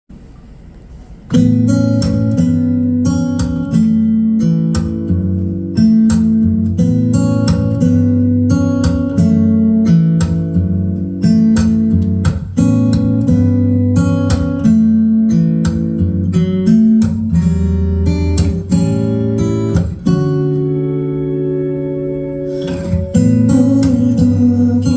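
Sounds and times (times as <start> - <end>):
acoustic guitar strumming chords: 1.2 - 24.9.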